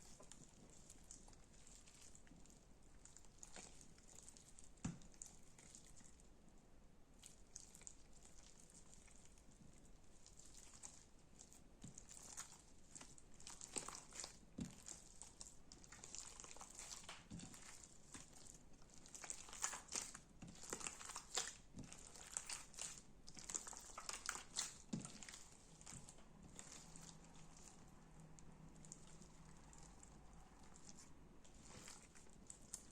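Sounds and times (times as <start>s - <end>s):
slime crackling and popping: 10.2s - 32.9s.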